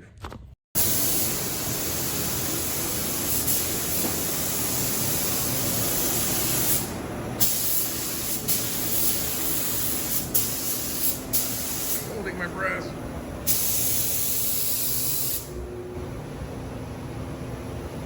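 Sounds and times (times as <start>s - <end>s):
loud steady hiss: 0.8s - 12.3s.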